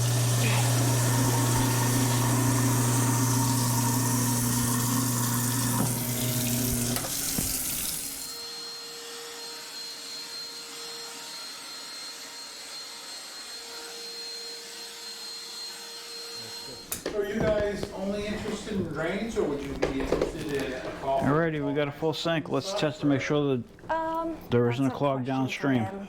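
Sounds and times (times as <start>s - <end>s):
faucet running into sink: 0.0s - 8.4s.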